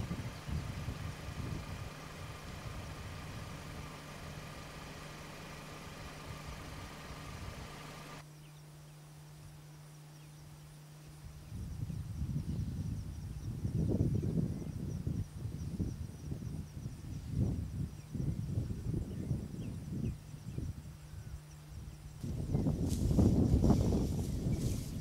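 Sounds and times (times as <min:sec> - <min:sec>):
vehicle engine idling: 0:00.0 - 0:08.2, 0:21.0 - 0:25.0.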